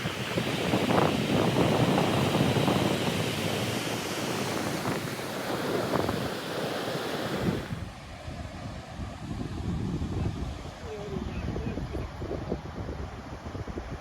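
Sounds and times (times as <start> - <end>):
ocean surf breaking: 0.0 - 9.3
wind buffeting microphone: 0.0 - 14.0.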